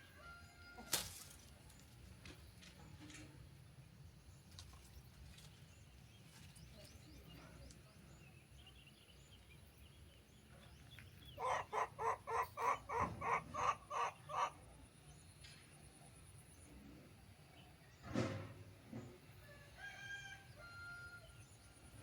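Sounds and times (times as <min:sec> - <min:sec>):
animal calling rapidly: 0:11.4 - 0:14.6.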